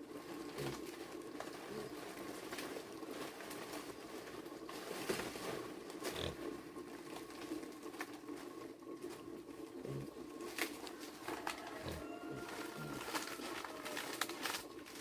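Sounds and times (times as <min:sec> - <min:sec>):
pigs grunting: 0:00.4 - 0:02.5, 0:05.7 - 0:07.0, 0:09.8 - 0:14.2.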